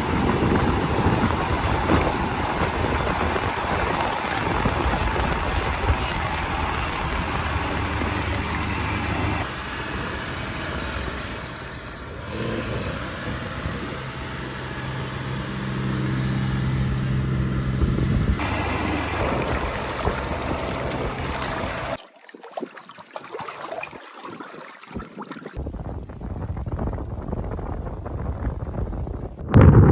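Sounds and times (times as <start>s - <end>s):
tractor diesel engines running: 0.0s - 22.0s
water noise: 0.0s - 29.7s
wind: 0.0s - 29.9s.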